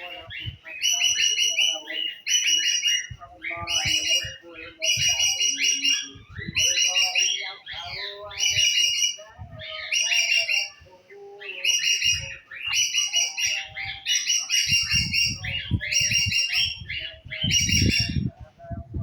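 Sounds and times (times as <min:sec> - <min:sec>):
songbird chirping: 0:00.0 - 0:19.0.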